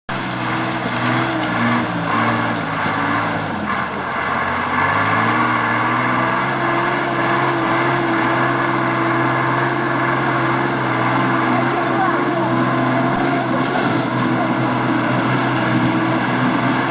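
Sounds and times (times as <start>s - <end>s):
large vehicle engine running: 0.0s - 16.9s.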